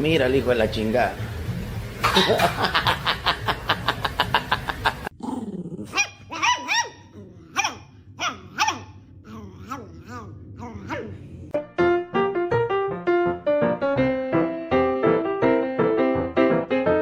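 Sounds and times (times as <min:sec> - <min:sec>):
dog barking: 0:05.9 - 0:09.0
dog yipping: 0:05.9 - 0:09.0.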